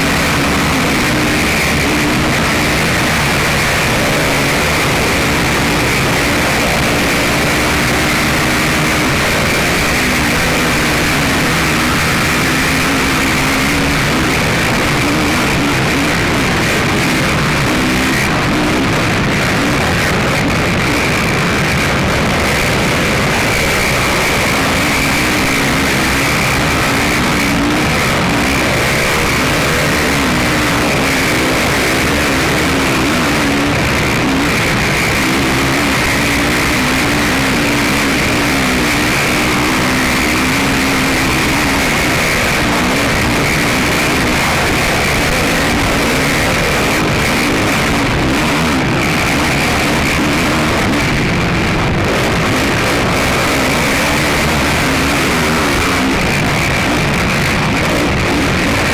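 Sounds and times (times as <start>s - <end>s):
atv engine revving: 0.0s - 58.9s
wind and riding noise: 0.0s - 58.9s.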